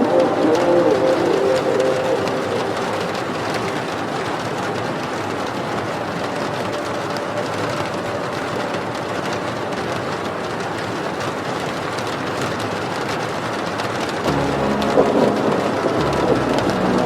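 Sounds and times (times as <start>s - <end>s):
song held notes: 0.0s - 4.0s, 14.3s - 17.0s
steady rain hiss: 0.0s - 6.2s, 14.2s - 17.0s
raindrop ticks: 0.0s - 17.0s.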